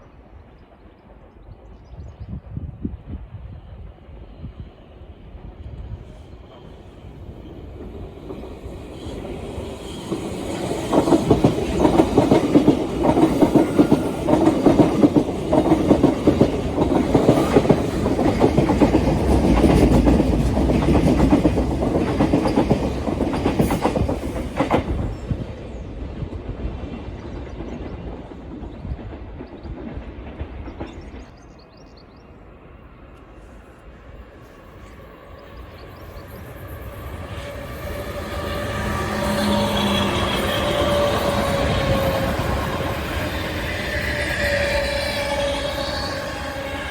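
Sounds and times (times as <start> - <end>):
train wheels clattering over rails: 6.4 - 31.9.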